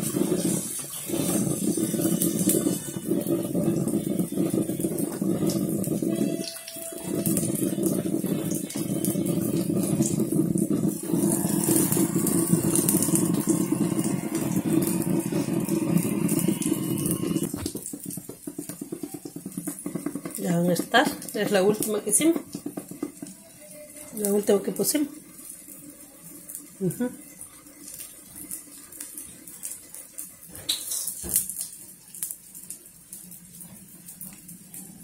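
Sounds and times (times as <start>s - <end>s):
batter sizzling in frying pan: 0.0s - 35.0s
low rushing noise: 11.0s - 17.5s.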